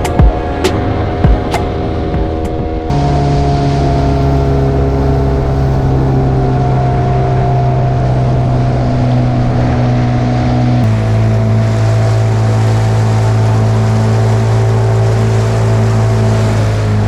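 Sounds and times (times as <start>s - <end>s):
outboard motor running: 0.0s - 17.0s
water noise: 0.0s - 17.0s
wind: 0.0s - 17.0s.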